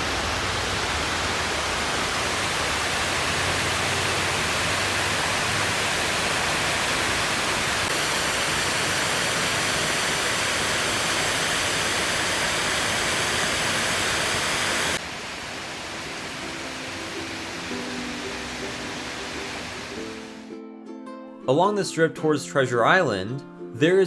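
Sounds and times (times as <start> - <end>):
water rushing down waterfall: 0.0 - 20.4
faint music: 16.0 - 24.0.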